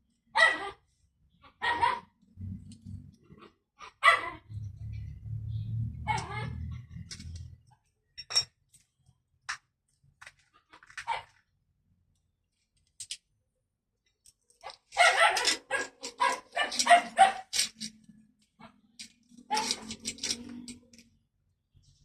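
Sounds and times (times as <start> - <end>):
dog barking: 0.3 - 0.8, 1.6 - 2.2, 3.8 - 4.5, 6.0 - 6.6, 15.0 - 17.6.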